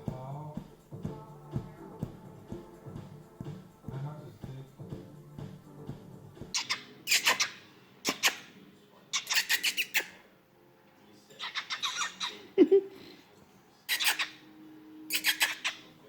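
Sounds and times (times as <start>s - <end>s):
cockatiel squeak: 6.6s - 8.5s, 9.1s - 10.2s, 11.4s - 12.5s, 13.9s - 14.4s, 15.1s - 16.0s
cockatiel clicking: 15.1s - 15.8s.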